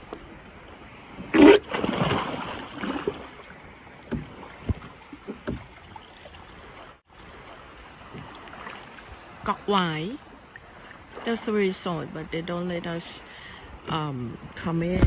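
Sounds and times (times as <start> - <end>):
water churning and sloshing: 0.0 - 15.0
person splashing into water: 1.3 - 3.4.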